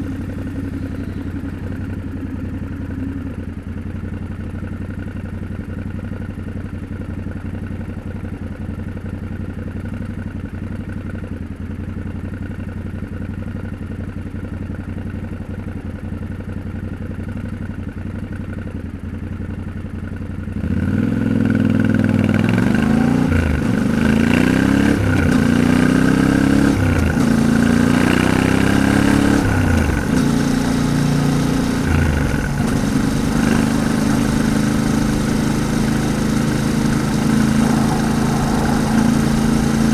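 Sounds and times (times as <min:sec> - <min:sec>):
motorcycle accelerating through gears: 0:00.0 - 0:11.4, 0:19.3 - 0:39.9
motorcycle engine idling: 0:00.0 - 0:39.9.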